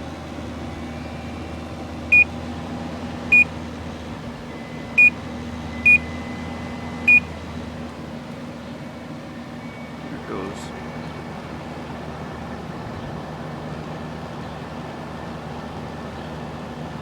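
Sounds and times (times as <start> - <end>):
air conditioner fan humming: 0.0 - 17.0
short electronic beeps: 5.8 - 6.1, 7.1 - 7.3.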